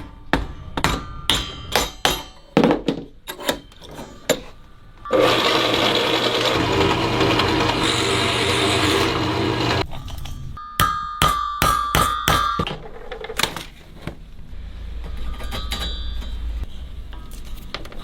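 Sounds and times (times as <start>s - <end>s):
hammer striking metal: 0.0s - 2.6s, 10.6s - 12.8s.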